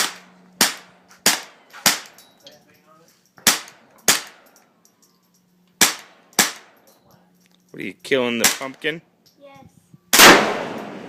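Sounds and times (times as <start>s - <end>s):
rifle shots: 3.4s - 4.4s, 5.8s - 6.7s, 10.1s - 11.0s.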